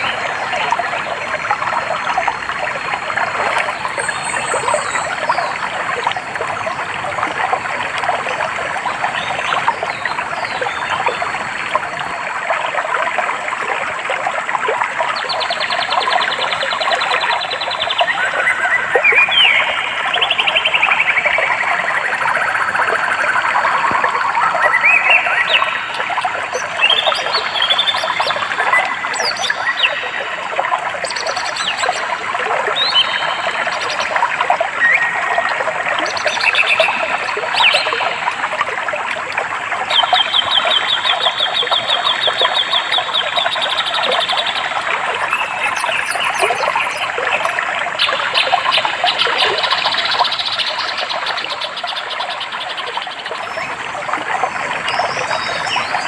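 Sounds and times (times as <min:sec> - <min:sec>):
stream babbling: 0:00.0 - 0:56.0
birds singing: 0:15.1 - 0:22.7, 0:31.0 - 0:38.3, 0:39.9 - 0:56.0.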